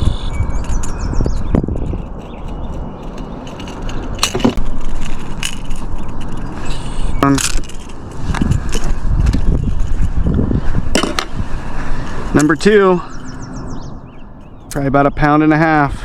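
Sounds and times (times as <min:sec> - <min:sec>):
hooks rattling: 0:00.6 - 0:08.1
sharp metallic clicks: 0:12.4 - 0:15.0.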